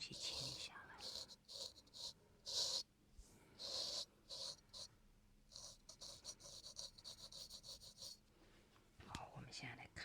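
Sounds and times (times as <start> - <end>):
razor scraping skin: 0.2 - 2.8, 5.5 - 8.2.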